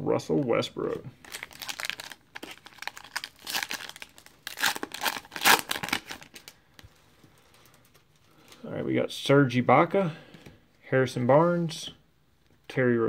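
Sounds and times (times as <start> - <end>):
card pack wrapper tearing and crinkling: 0.8 - 6.6.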